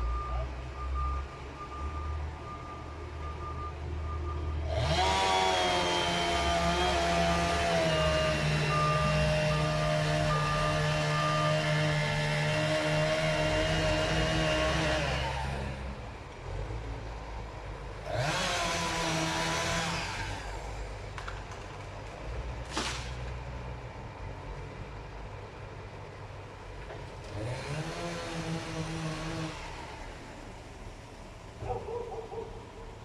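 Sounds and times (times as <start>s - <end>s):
engine revving: 4.5s - 17.1s, 17.9s - 21.4s, 27.2s - 30.5s.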